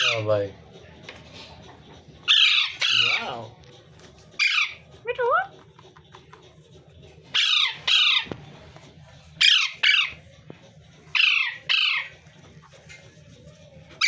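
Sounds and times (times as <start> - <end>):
parrot squawking: 0.0 - 0.3, 2.2 - 3.6, 4.3 - 5.5, 7.3 - 8.6, 9.4 - 10.4, 11.1 - 13.2.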